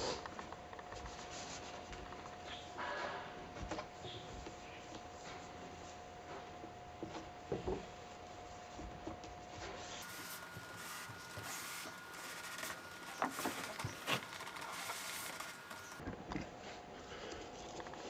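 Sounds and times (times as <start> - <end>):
rope rubbing on pipe: 10.0 - 16.0.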